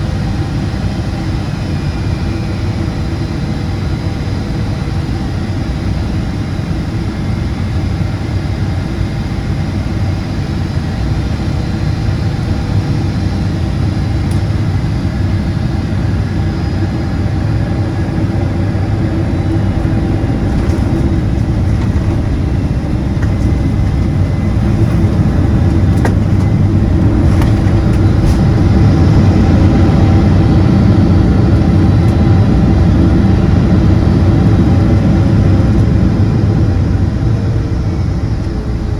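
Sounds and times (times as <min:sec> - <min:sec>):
faint engine whine: 0:00.0 - 0:38.9
jet engine cabin rumble: 0:00.0 - 0:38.9.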